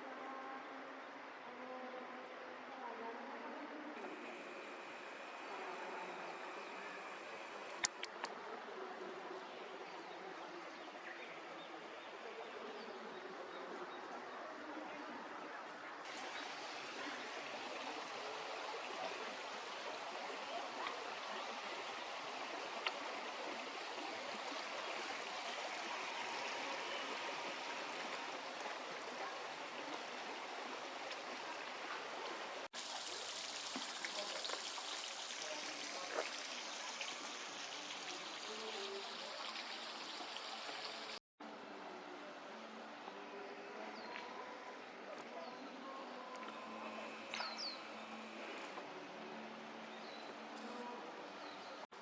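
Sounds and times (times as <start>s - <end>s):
river water running over stones: 16.1s - 41.2s.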